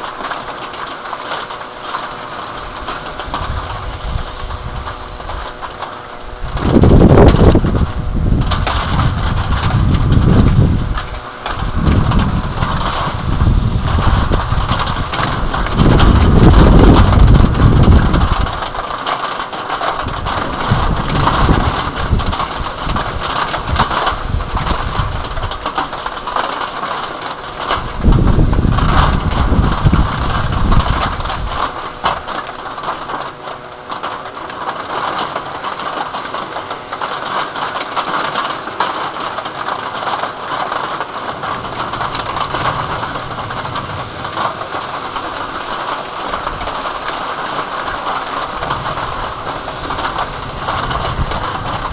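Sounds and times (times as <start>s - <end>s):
heavy rain pelting down: 0.0s - 51.9s
wind gusts buffeting microphone: 2.6s - 19.0s, 19.7s - 33.2s, 40.7s - 51.9s.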